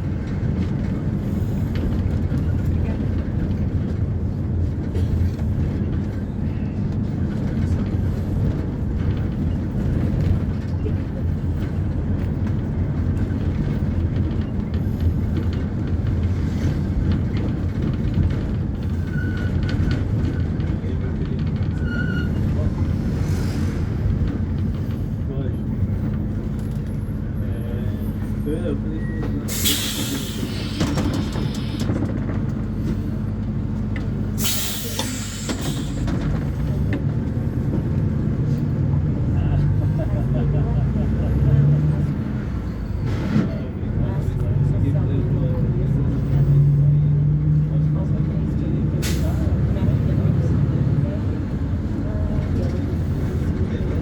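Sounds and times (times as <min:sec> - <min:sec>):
diesel bus engine rumbling: 0:00.0 - 0:54.0
air brake hiss: 0:29.5 - 0:31.9, 0:34.4 - 0:36.0.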